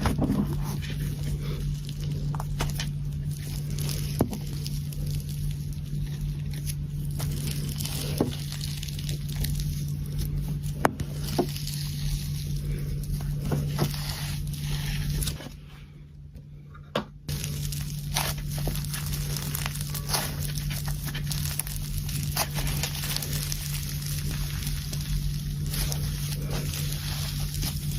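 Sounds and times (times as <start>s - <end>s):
low hum: 0.0s - 27.9s
slime squished by hand: 17.3s - 27.9s.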